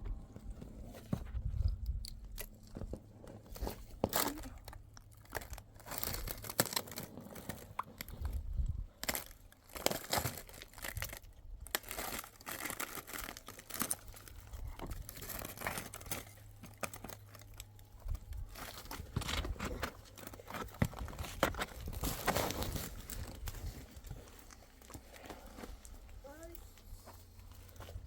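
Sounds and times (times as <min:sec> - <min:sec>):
low hum: 0:00.0 - 0:05.6
rustling and crinkling: 0:00.0 - 0:28.0.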